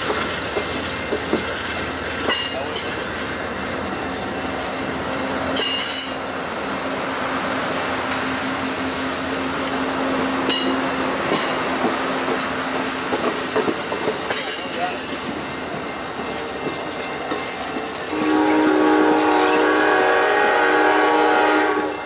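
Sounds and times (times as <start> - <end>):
train wheels clattering on rails: 0.0 - 22.0
train air horn blast: 18.1 - 22.0.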